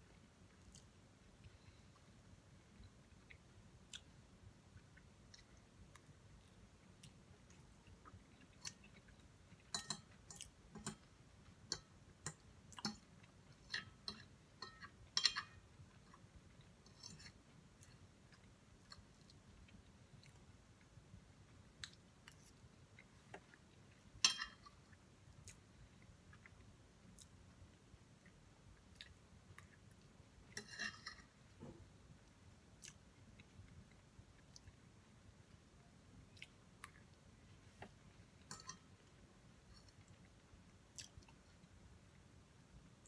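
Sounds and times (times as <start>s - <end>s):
close chewing with wet mouth clicks: 15.8s - 24.1s, 28.1s - 30.1s, 32.7s - 34.8s, 36.3s - 37.2s, 39.8s - 41.8s.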